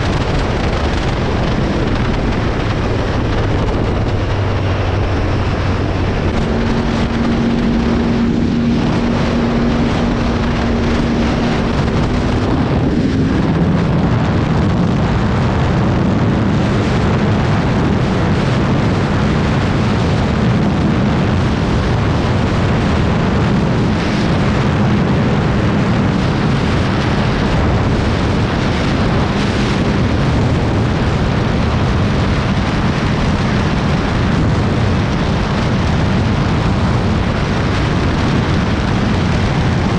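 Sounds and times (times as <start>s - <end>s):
moped engine running: 0.0s - 14.0s
wind rushing over microphone: 0.0s - 39.9s.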